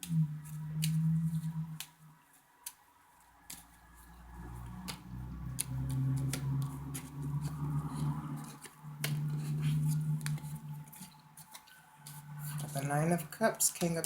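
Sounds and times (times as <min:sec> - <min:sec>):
cards being shuffled: 0:02.6 - 0:14.0
cards snapping and clicking: 0:04.8 - 0:12.7.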